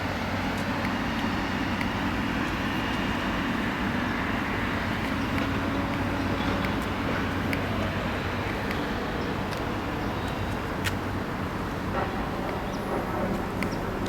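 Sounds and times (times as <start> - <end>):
motor vehicle rumble: 0.0 - 14.0.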